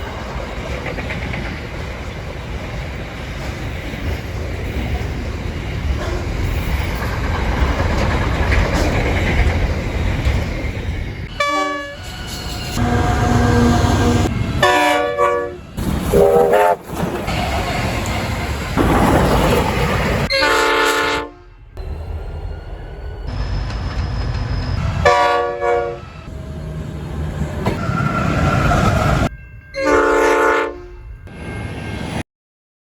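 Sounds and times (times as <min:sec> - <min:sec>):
freight train rumble and clatter: 0:00.0 - 0:32.2
locomotive horn blasts: 0:11.3 - 0:18.4, 0:20.3 - 0:21.7, 0:24.8 - 0:26.6, 0:29.8 - 0:31.0.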